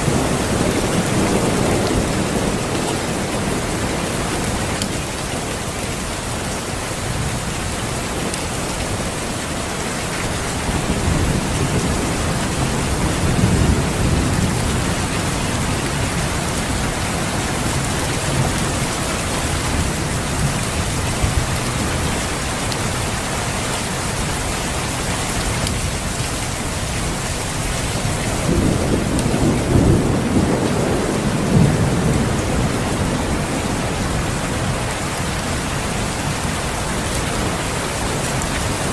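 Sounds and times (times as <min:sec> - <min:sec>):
heavy rain: 0:00.0 - 0:38.9
low thunder rumbles: 0:10.0 - 0:23.2, 0:26.5 - 0:38.9.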